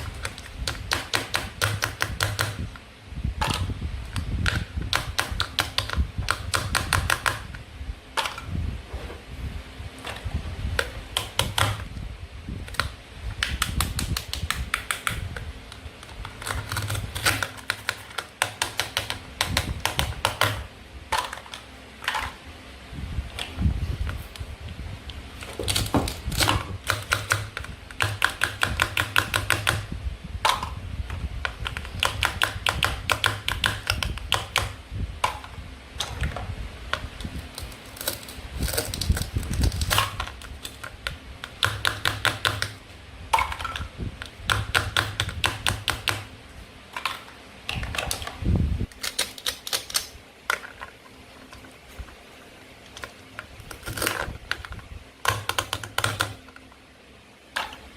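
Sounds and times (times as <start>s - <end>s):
sharp plastic clicks: 0.0s - 2.8s, 3.4s - 7.6s, 10.8s - 12.0s, 12.6s - 22.4s, 25.5s - 42.8s, 43.4s - 46.3s, 47.0s - 50.9s, 52.9s - 56.7s.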